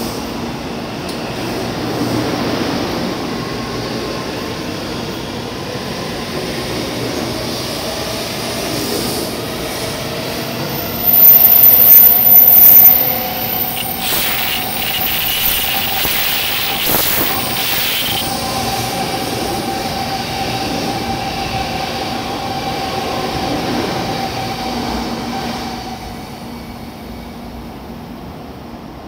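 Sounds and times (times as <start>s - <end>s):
train cars rolling: 10.6s - 18.6s
traction motor whine: 10.8s - 18.4s
rush with high hiss: 10.8s - 18.5s.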